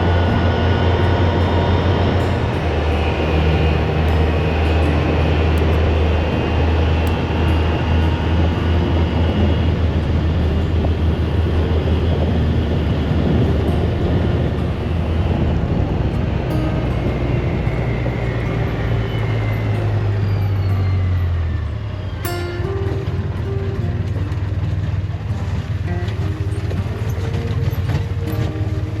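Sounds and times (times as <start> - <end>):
rolling noise: 0.0 - 29.0
utility vehicle engine drone: 0.0 - 29.0.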